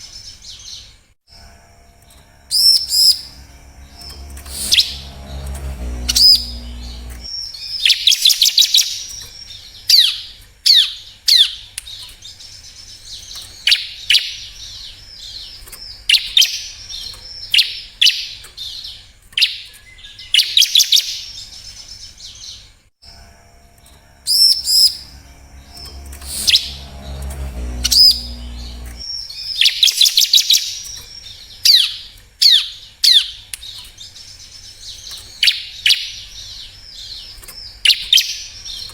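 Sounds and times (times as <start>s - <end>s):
low hum: 1.4s - 7.3s, 23.1s - 29.1s.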